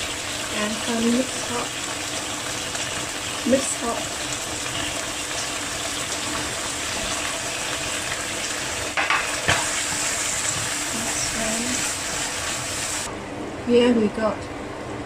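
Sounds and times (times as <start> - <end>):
sauce sizzling in a pan: 0.0 - 13.1
utensil knocking against pan: 8.9 - 10.7.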